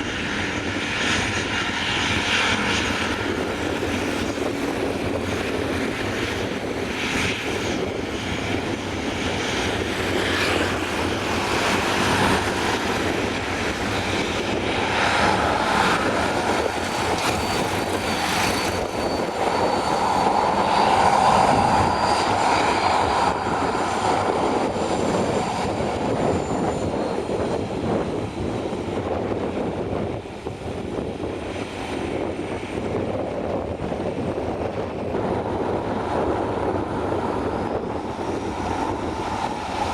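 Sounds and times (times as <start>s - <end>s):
airliner engines roaring: 0.0s - 39.9s
wind buffeting microphone: 0.0s - 39.9s.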